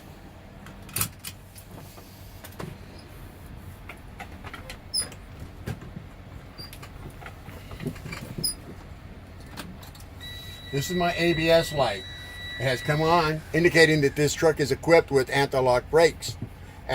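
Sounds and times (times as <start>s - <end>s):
small clicks taps and rustles: 3.8s - 10.1s.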